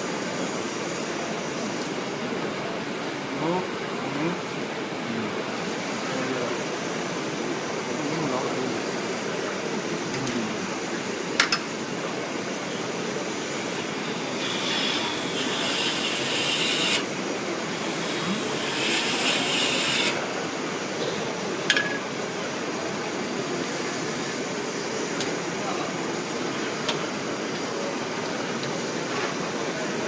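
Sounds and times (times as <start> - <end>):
lathe running: 13.6 - 20.3
tool scraping spinning workpiece: 14.3 - 17.0, 17.8 - 20.2.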